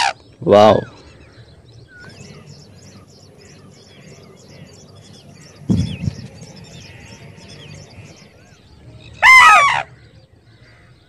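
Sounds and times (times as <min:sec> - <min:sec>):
small birds chirping: 0:00.1 - 0:11.0
low thump: 0:05.7 - 0:06.3.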